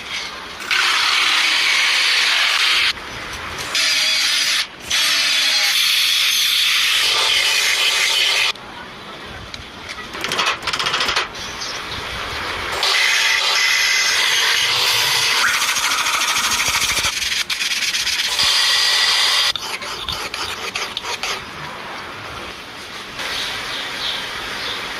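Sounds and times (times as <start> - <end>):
power tool grinding metal: 3.7 - 8.5, 12.8 - 21.4.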